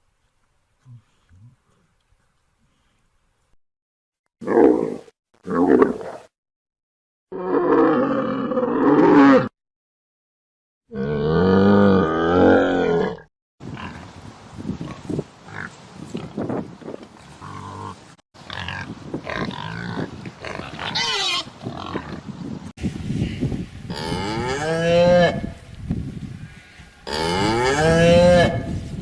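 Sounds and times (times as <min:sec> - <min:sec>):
cattle mooing: 0:27.0 - 0:28.7.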